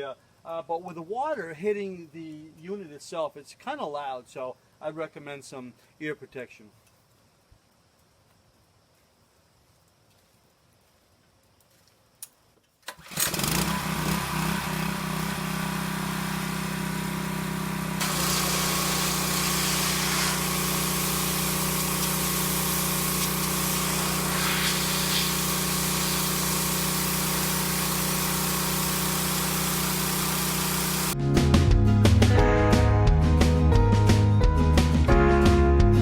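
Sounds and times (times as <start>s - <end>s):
pressure washer engine running: 13.0s - 31.2s
high-pressure water spray hiss: 13.5s - 31.2s.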